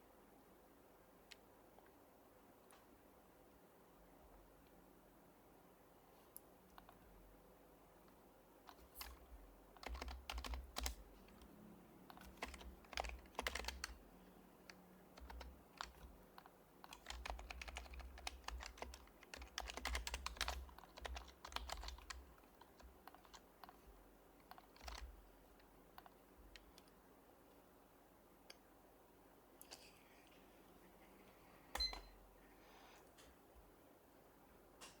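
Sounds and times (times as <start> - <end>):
keyboard typing: 8.7 - 23.8, 24.4 - 26.9.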